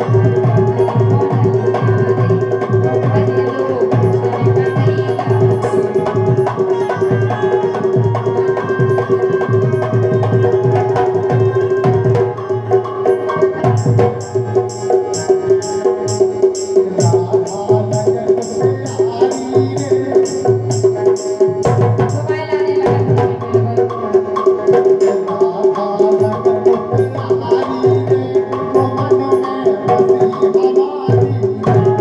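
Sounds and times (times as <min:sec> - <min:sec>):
held melody note: 0:00.0 - 0:24.2
crisp high percussion: 0:00.0 - 0:32.0
hand drum beat: 0:00.0 - 0:32.0.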